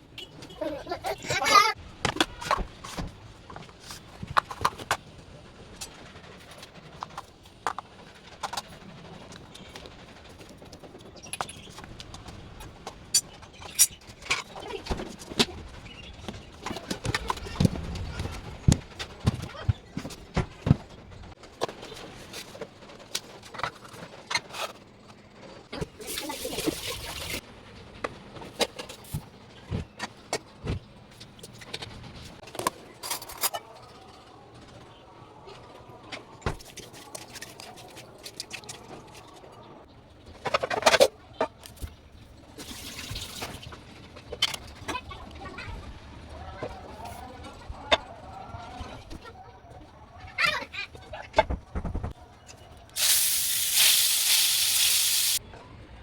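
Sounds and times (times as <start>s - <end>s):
objects clicking and knocking: 2.0s - 25.9s.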